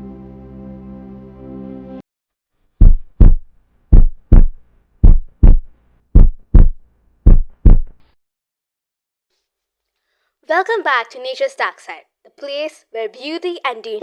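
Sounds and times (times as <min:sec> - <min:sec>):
heartbeat thumps: 0:02.8 - 0:08.0.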